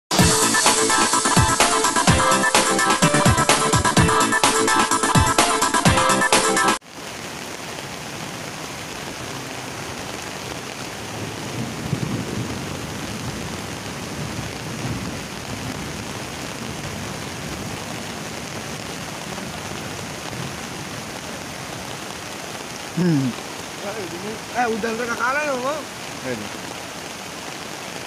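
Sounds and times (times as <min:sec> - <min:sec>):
heavy rain hissing: 0:00.1 - 0:28.0
river rushing: 0:06.9 - 0:11.4, 0:21.0 - 0:28.0.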